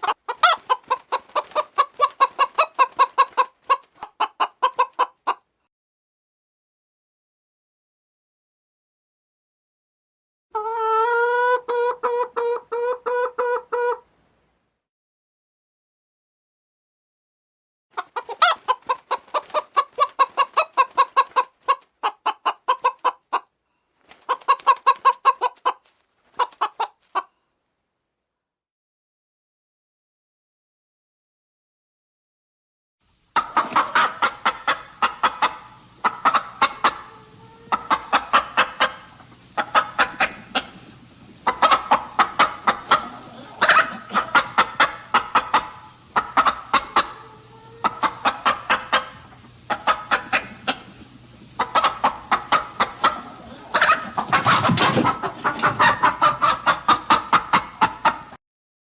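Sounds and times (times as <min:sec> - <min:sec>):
chicken clucking: 0:00.0 - 0:05.5, 0:10.5 - 0:14.0, 0:17.9 - 0:23.5, 0:24.1 - 0:27.4, 0:33.4 - 0:58.4.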